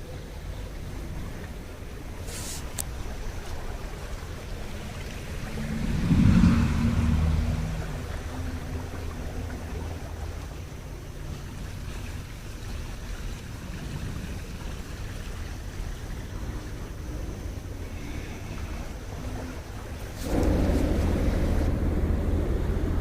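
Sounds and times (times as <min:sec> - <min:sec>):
heavy engine revving: 0:20.2 - 0:23.0.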